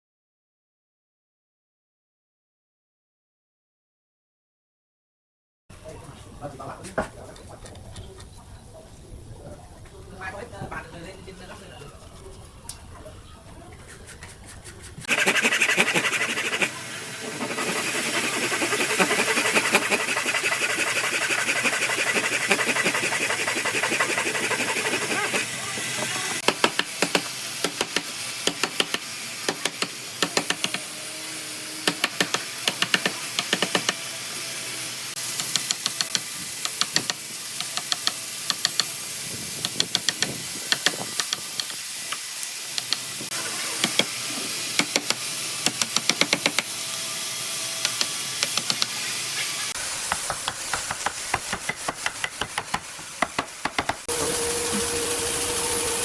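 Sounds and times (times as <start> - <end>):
scraping wood: 13.8 - 30.8, 47.8 - 56.0
rough grinding hiss on wood: 15.0 - 56.0
sharp knocks: 50.1 - 54.1.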